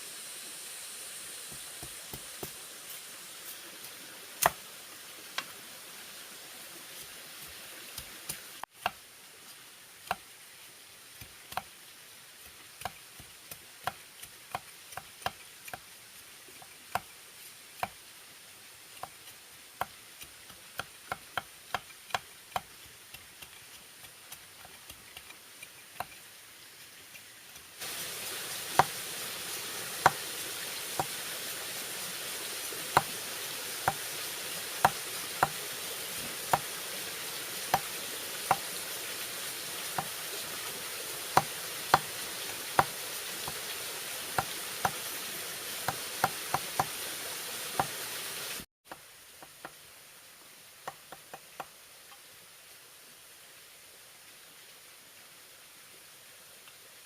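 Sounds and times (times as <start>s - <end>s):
steady hiss: 0.0s - 57.0s
blade knocking on bamboo: 20.8s - 22.7s, 34.8s - 35.6s, 42.8s - 43.6s.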